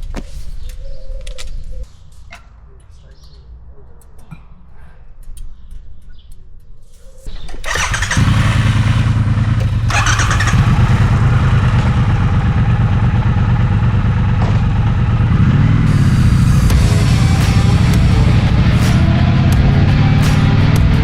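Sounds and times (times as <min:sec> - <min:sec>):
motorcycle engine starting and running: 0:07.3 - 0:21.0.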